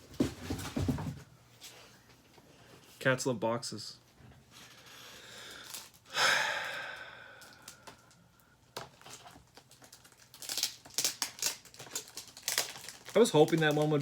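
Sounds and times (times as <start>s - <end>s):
person exhaling breathily: 4.8s - 8.0s.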